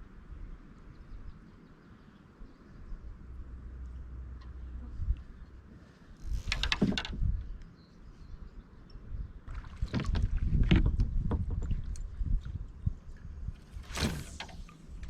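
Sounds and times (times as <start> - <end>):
kayak paddle strokes splashing: 9.5 - 12.7, 13.6 - 15.0.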